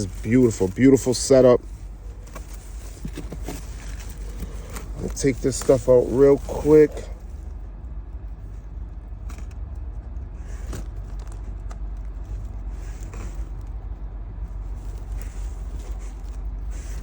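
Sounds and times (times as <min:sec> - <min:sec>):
packing material rustling: 0:00.0 - 0:07.4
steady low rumble: 0:00.0 - 0:17.0.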